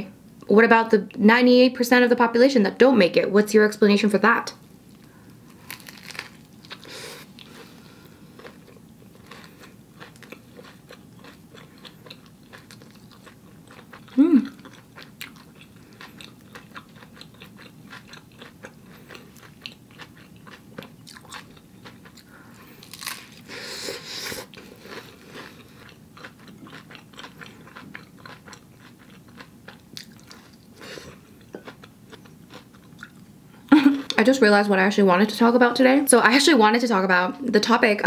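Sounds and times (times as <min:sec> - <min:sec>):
person chewing a burger: 0:04.9 - 0:33.3
crunchy bite: 0:05.5 - 0:07.5, 0:21.0 - 0:23.5.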